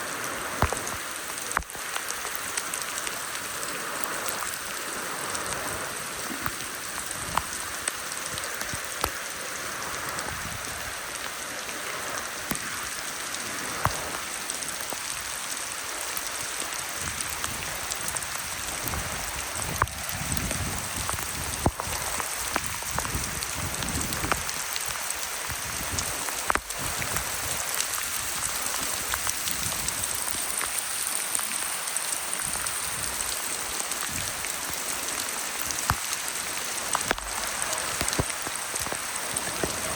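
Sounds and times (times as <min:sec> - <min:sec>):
steady rain: 0:00.0 - 0:39.9
raindrops tapping sharply: 0:35.7 - 0:39.9.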